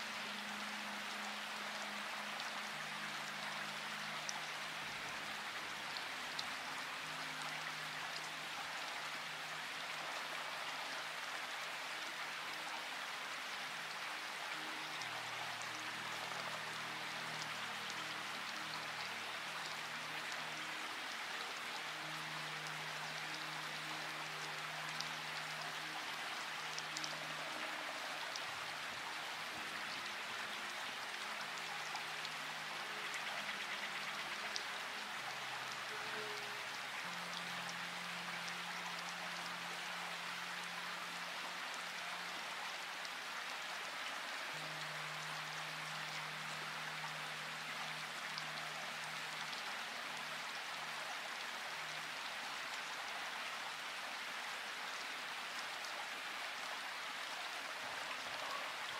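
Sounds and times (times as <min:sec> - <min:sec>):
slow music of held low notes: 0:00.0 - 0:58.9
steady rain falling: 0:00.0 - 0:58.9.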